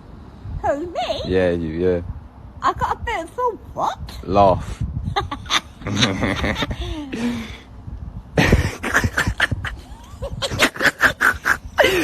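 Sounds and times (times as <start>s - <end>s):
person laughing in breathy bursts: 5.0s - 7.6s, 8.4s - 12.0s.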